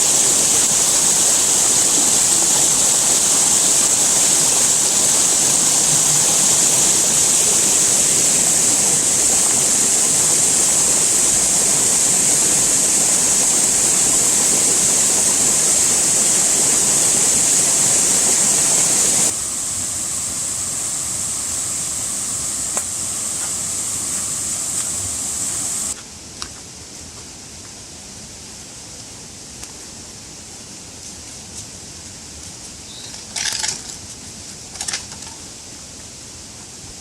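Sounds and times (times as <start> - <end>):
steady rushing hiss: 0.0 - 37.0.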